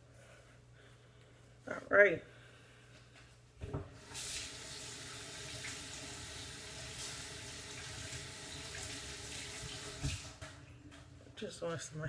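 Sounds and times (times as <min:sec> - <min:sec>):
tap water running into sink: 0:03.9 - 0:10.6.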